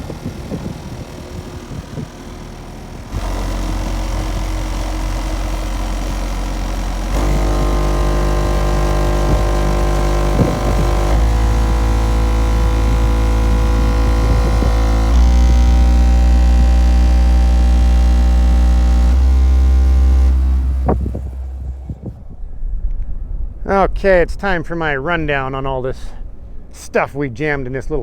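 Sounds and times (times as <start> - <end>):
sustained tones: 0.0 - 22.7
deep bass notes from subwoofers: 0.0 - 23.8.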